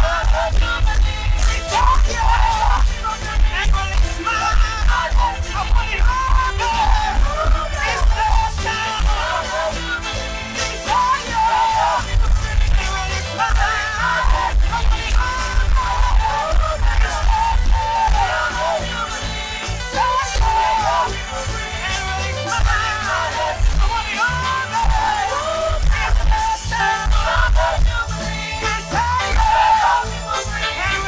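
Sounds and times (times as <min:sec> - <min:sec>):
choir singing: 0:00.0 - 0:31.0
live band with bass and drums: 0:00.0 - 0:31.0.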